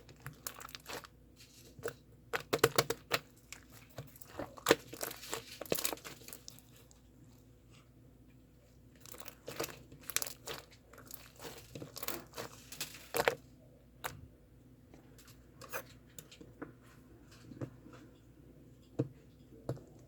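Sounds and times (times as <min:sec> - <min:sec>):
crinkling and crackling: 0:00.0 - 0:14.2.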